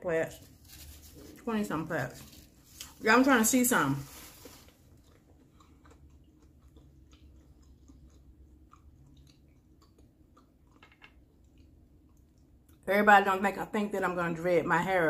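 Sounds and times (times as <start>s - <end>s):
person chewing: 4.4s - 12.8s.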